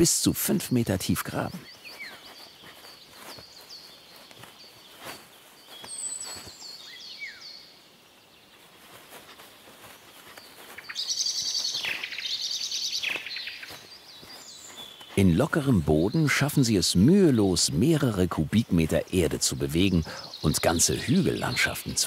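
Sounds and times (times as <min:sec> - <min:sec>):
songbirds singing: 0:00.0 - 0:22.0
bird trill: 0:00.6 - 0:07.7, 0:10.3 - 0:16.6
faint clicks and rustles: 0:01.5 - 0:06.9, 0:08.5 - 0:15.2.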